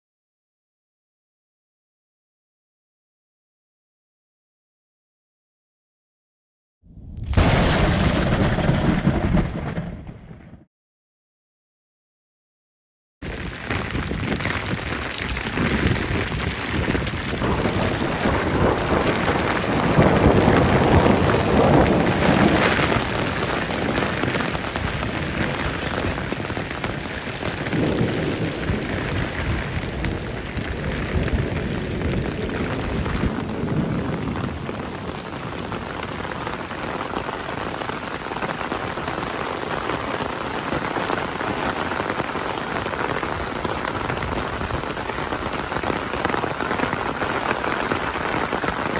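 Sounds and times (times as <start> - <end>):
rain falling: 7.2 - 10.4, 13.2 - 48.9.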